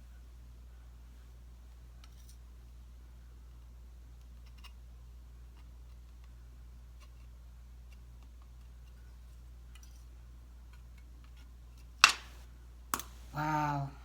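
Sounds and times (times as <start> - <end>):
short vocal sound: 13.3 - 14.0.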